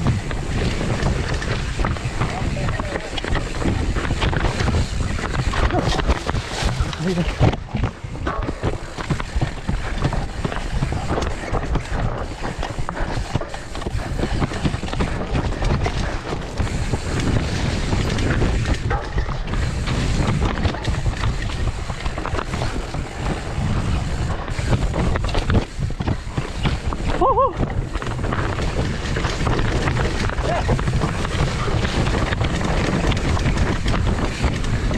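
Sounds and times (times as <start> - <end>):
bike knocking and rattling: 0.0 - 34.9
wind buffeting microphone: 0.0 - 34.9.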